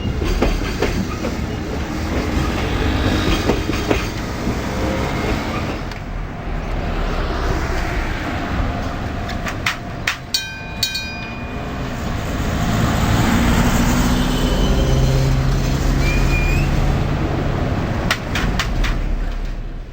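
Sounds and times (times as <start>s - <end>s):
train wheel squeal: 0.0s - 5.8s, 11.5s - 17.0s
wheels clacking over rail joints: 0.0s - 8.0s, 8.7s - 19.9s
freight train rumbling: 0.0s - 19.9s.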